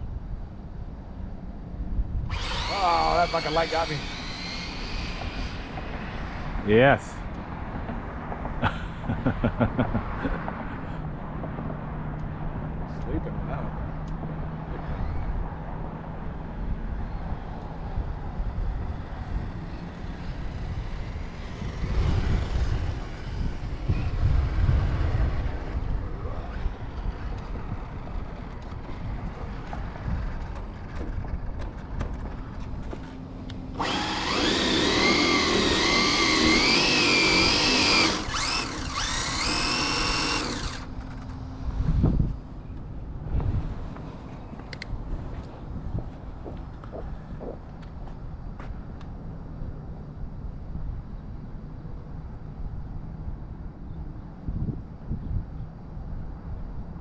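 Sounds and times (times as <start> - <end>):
high electric motor whine: 2.2 - 6.7, 16.4 - 42.3.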